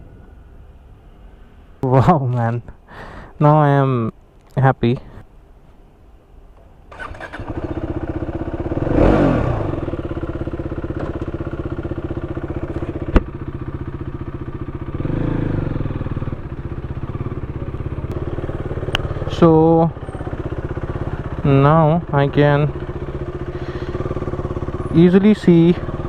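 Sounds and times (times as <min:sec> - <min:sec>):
motorcycle engine idling and revving: 0:06.9 - 0:26.0.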